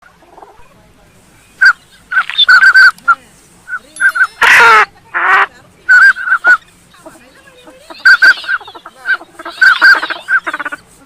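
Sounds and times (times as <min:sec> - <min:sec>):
ducks whistling: 0:01.4 - 0:10.9
harsh duck calls: 0:01.6 - 0:03.1, 0:03.7 - 0:10.9.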